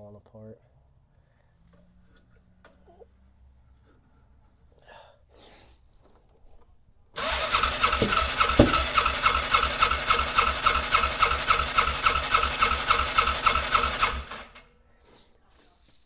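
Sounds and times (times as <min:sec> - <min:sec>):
engine cranking on starter: 0:07.2 - 0:14.7
loud thumps: 0:07.8 - 0:09.2.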